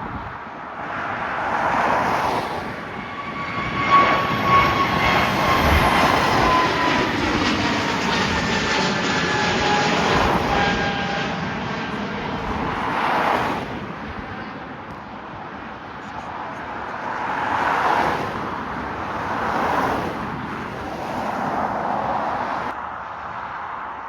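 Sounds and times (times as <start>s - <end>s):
jet engine roar: 0.0s - 23.8s
faint engine whine: 2.6s - 17.2s.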